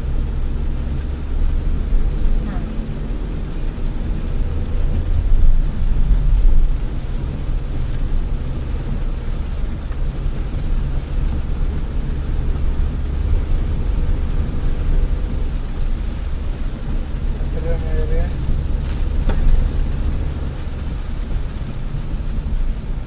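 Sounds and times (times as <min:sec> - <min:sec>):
engine and tyre drone: 0:00.0 - 0:23.0.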